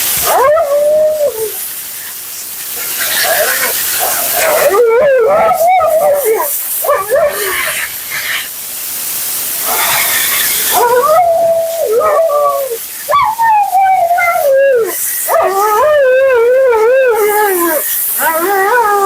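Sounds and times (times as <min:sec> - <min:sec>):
dog howling: 0:00.2 - 0:01.6, 0:03.1 - 0:07.6, 0:10.7 - 0:19.0.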